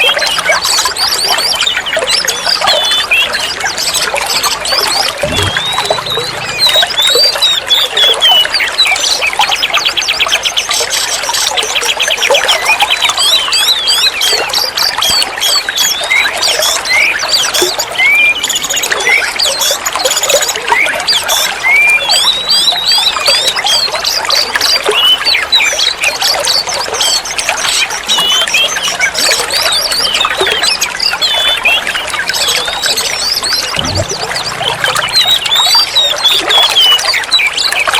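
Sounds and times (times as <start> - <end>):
bird singing varied whistles: 0.0 - 9.6.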